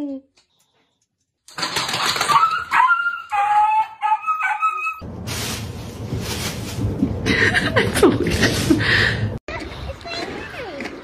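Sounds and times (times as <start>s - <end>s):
high-pitched animal cries: 2.3s - 5.0s.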